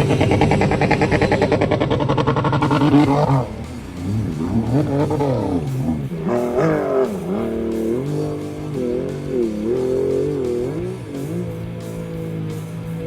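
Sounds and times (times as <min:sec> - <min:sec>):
jet ski engine revving: 0:00.0 - 0:13.0.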